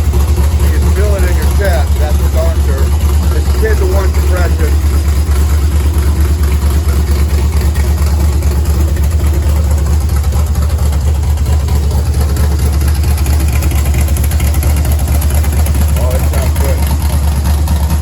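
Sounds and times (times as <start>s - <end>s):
loud pulsing engine idling: 0.0s - 18.0s.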